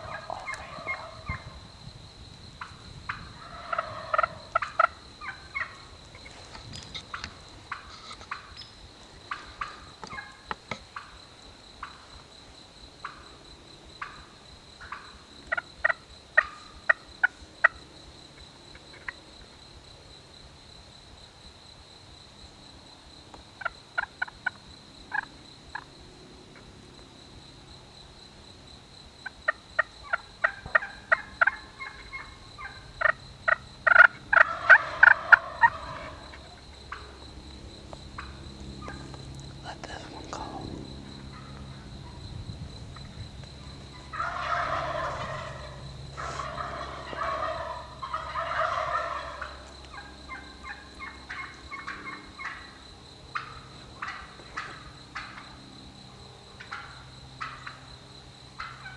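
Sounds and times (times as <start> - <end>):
wild turkeys gobbling: 0.0 - 1.6, 2.6 - 11.2, 11.8 - 12.2, 13.0 - 13.2, 14.0 - 17.8, 18.9 - 19.2, 23.6 - 25.9, 29.2 - 37.2, 38.2 - 39.2, 41.2 - 42.2, 43.6 - 55.6, 56.6 - 57.8, 58.6 - 58.9.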